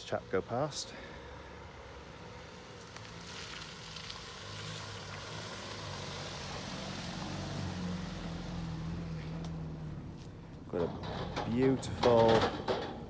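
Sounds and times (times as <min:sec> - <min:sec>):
road noise: 0:00.0 - 0:13.0
passing vehicle engine hum: 0:01.6 - 0:11.4.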